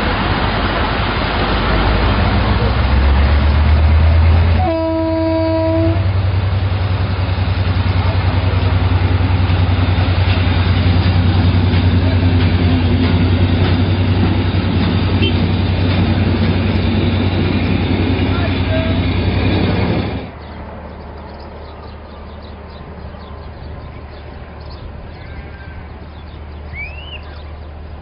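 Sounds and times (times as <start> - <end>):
train coaches rumbling on rails: 0.0 - 28.0
train horn blast: 4.5 - 6.2, 15.2 - 15.5.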